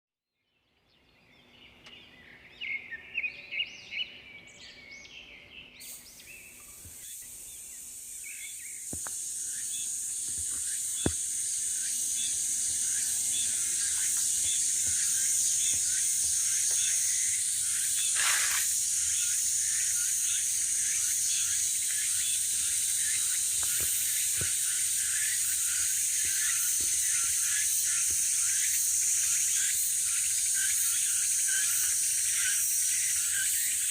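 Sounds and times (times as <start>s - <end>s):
small birds chirping: 0.5s - 33.9s
high-pitched insect chorus: 5.8s - 33.9s.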